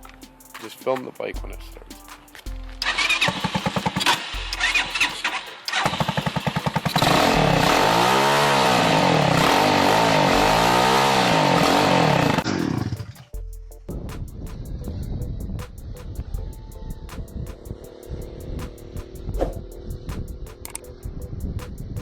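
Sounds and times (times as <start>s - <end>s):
small engine starting and revving: 2.8s - 13.2s, 17.6s - 21.8s.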